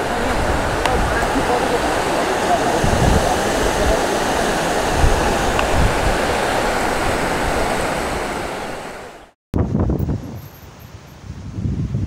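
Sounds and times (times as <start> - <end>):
wind noise on microphone: 0.0 - 9.0, 9.6 - 12.0
river water rushing: 0.0 - 9.4.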